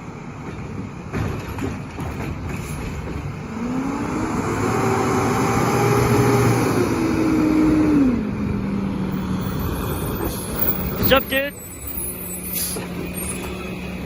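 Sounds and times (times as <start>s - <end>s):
truck engine revving: 3.4s - 11.2s.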